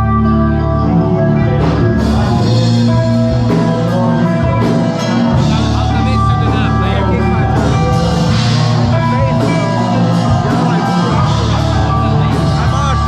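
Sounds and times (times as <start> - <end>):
rock band playing: 0.0 - 13.0
drum and cymbal hits: 1.7 - 13.0.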